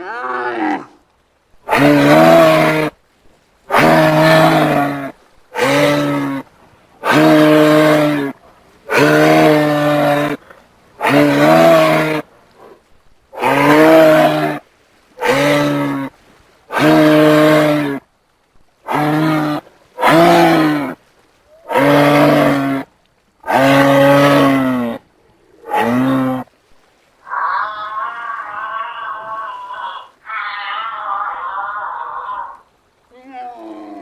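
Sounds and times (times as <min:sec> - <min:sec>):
animal mooing calls: 0:01.7 - 0:03.0, 0:03.7 - 0:10.4, 0:11.0 - 0:12.2, 0:13.4 - 0:14.6, 0:15.2 - 0:16.1, 0:16.7 - 0:18.0, 0:18.9 - 0:21.0, 0:21.6 - 0:25.0, 0:25.6 - 0:26.5, 0:27.2 - 0:32.7.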